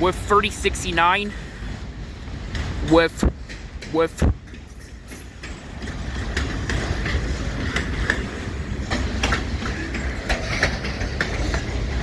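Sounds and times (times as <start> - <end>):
freight train rumbling past: 5.3 - 12.0.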